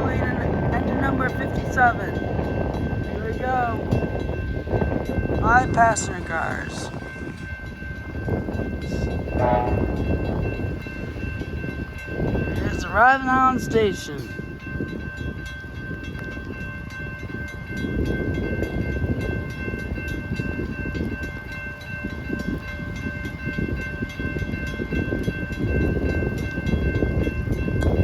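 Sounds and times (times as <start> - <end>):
rain and high wind: 0.0 - 28.0
train low rumble: 0.0 - 28.0
steady high tones: 5.1 - 10.3.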